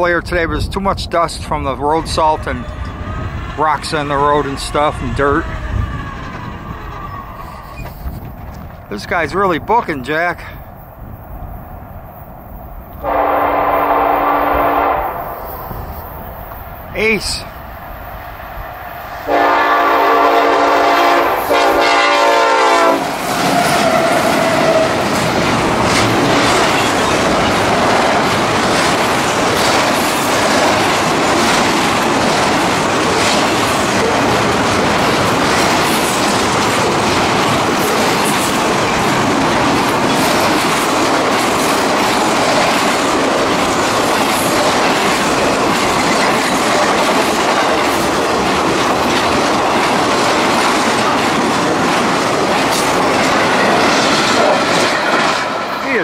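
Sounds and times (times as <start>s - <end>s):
freight train rumbling past: 0.0s - 56.0s
locomotive air horn blasts: 13.0s - 15.4s, 19.3s - 23.0s
wheels clicking over rail joints: 23.0s - 56.0s.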